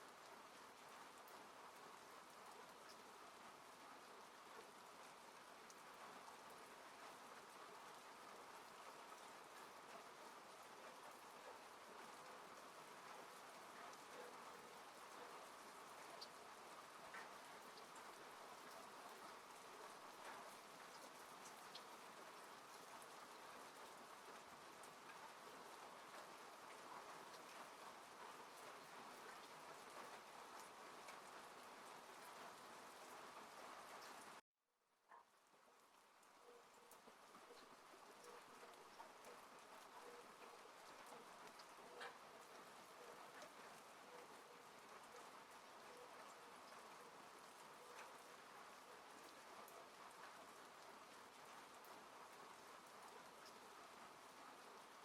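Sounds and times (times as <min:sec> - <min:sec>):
rain falling on car: 0:00.1 - 0:34.4, 0:36.9 - 0:55.0
raindrops ticking: 0:35.1 - 0:52.0.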